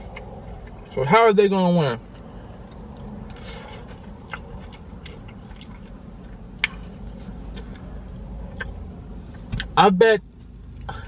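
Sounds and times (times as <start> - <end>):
man chewing and smacking: 0.0 - 1.2, 1.9 - 9.8
steady low hum: 0.0 - 11.0
wet mouth clicks: 8.5 - 8.8.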